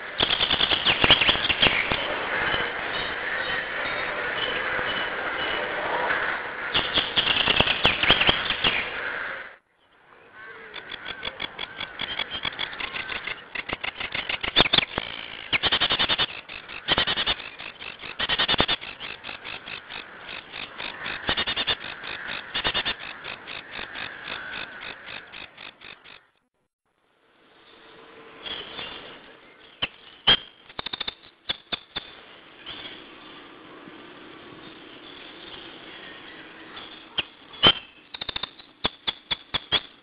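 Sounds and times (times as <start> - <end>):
animal pulsed trilling calls: 10.6 - 26.4.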